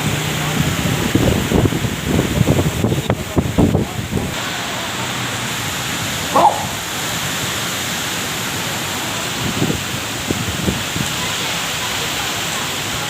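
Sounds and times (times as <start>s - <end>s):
heavy rain pouring: 0.0s - 13.0s
short call: 6.3s - 6.9s.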